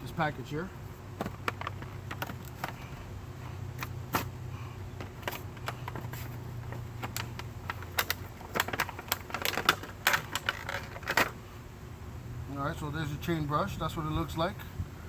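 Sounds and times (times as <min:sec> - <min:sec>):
steady low hum: 0:00.0 - 0:15.0
plastic packaging crackling: 0:05.1 - 0:11.4.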